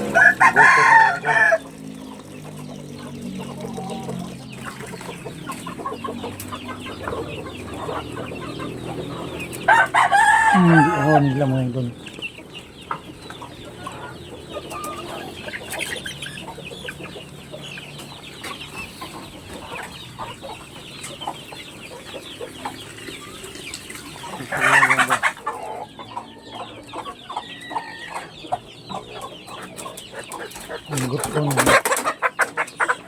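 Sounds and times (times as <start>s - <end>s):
loud chicken call: 0.0s - 1.9s, 5.7s - 12.0s, 23.8s - 28.7s
chickens clucking: 0.0s - 33.0s.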